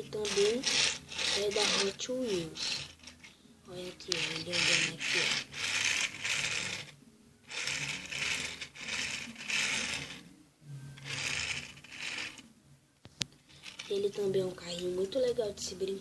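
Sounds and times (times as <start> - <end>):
toy car wheels rolling: 0.0 - 10.2, 11.0 - 12.4, 13.5 - 14.2.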